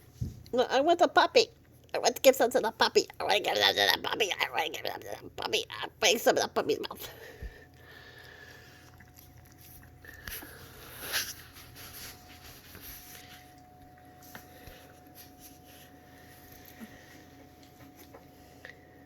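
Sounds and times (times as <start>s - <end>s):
puppies lapping food: 1.5s - 12.2s.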